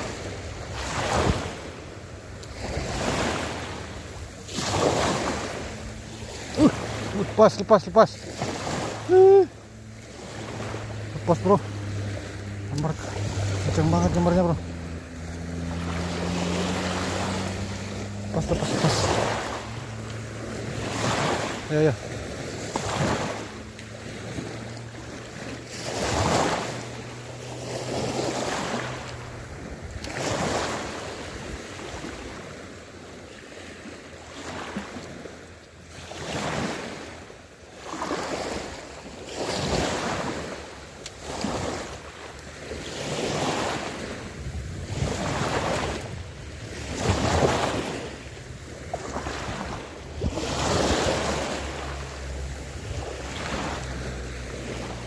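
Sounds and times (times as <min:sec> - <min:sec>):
small waves washing in: 0:00.0 - 0:55.0
wind buffeting microphone: 0:44.0 - 0:51.2.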